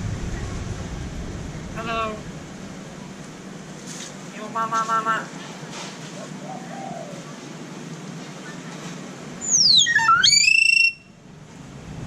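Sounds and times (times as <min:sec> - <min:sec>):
bird whistling: 0:09.4 - 0:11.2.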